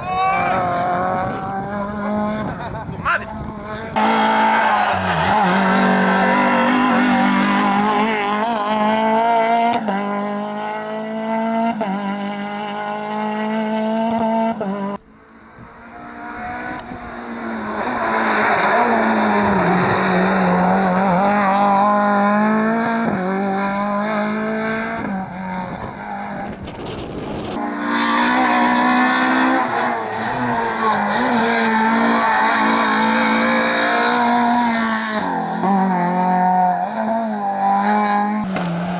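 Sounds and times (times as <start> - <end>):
rally car engines revving: 0.0 - 38.9
tyre squeal: 4.0 - 7.5.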